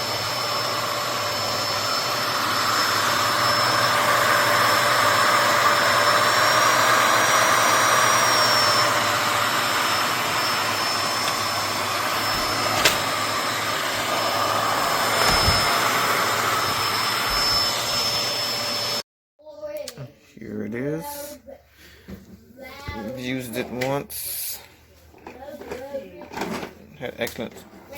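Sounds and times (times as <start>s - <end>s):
vacuum cleaner whining: 0.0s - 19.0s.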